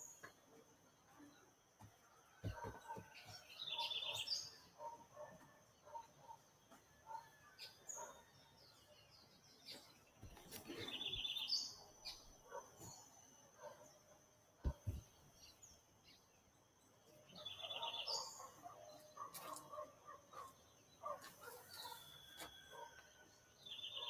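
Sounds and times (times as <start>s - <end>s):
soft lower bird calls: 9.6s - 12.3s.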